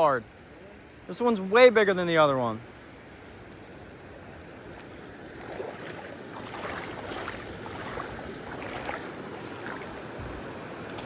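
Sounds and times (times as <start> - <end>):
moving water splashing: 4.6 - 11.0.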